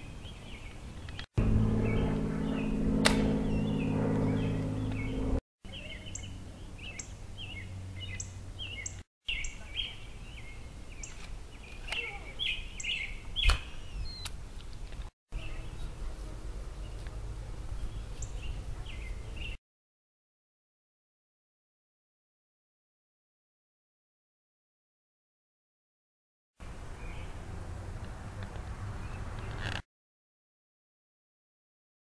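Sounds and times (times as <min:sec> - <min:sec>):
birds chirping: 0:00.0 - 0:14.4, 0:15.4 - 0:19.6
low background rumble: 0:01.4 - 0:05.4
sharp click: 0:03.0 - 0:03.3.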